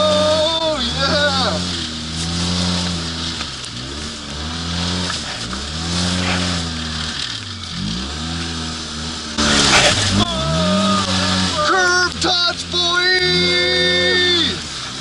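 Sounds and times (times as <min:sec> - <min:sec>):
engine revving up and down: 0:00.0 - 0:15.0
loud rushing burst: 0:09.4 - 0:11.6.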